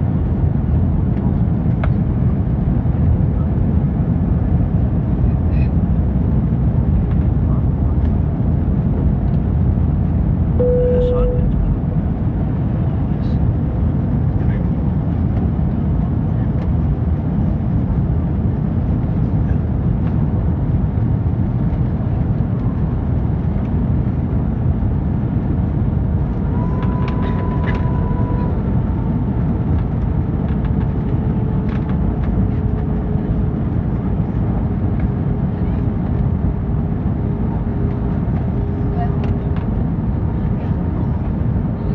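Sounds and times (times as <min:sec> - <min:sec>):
airliner cabin engine rumble: 0:00.0 - 0:41.9
short high tone: 0:10.6 - 0:11.6.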